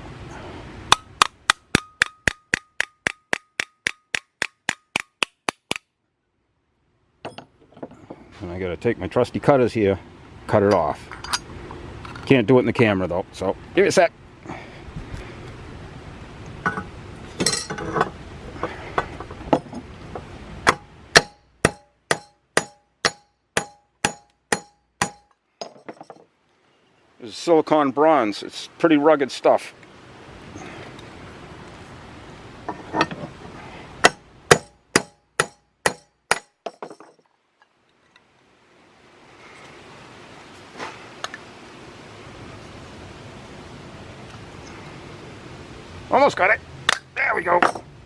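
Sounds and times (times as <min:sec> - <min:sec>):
hammer tapping metal rivet: 0:00.9 - 0:05.8, 0:20.6 - 0:26.2, 0:34.0 - 0:37.2, 0:46.9 - 0:47.9
metal tools clanking: 0:07.2 - 0:08.3, 0:10.6 - 0:12.4, 0:16.6 - 0:20.8, 0:23.6 - 0:26.3, 0:32.7 - 0:33.4, 0:35.4 - 0:37.3, 0:47.6 - 0:47.9.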